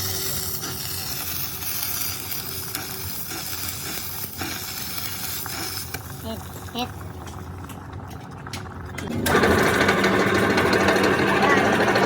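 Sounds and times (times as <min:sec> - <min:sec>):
arc welding sizzle: 0:00.0 - 0:07.2.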